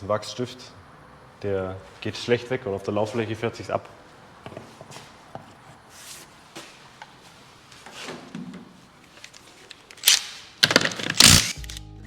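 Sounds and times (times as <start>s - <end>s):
light knocks and clunks: 7.8s - 8.8s.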